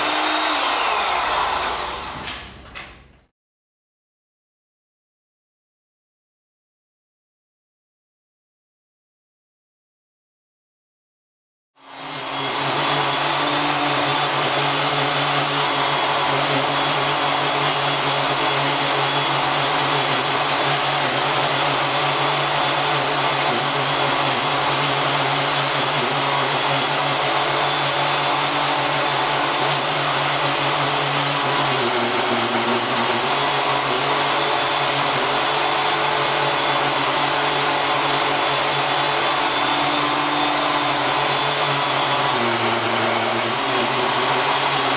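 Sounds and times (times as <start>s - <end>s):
power cutting tool motor running: 0.0s - 2.6s, 11.8s - 44.9s.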